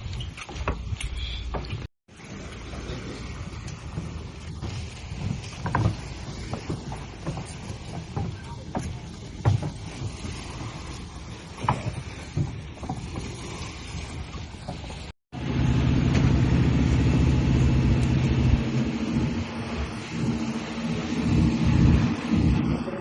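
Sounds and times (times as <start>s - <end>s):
engine droning: 15.3s - 23.0s
engine knocking and rumbling: 15.3s - 23.0s.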